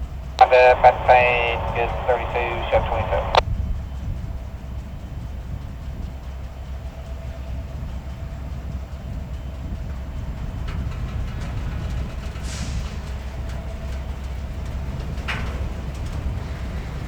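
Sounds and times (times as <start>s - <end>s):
diesel locomotive rumble: 0.1s - 17.0s
steady whine: 0.4s - 3.4s.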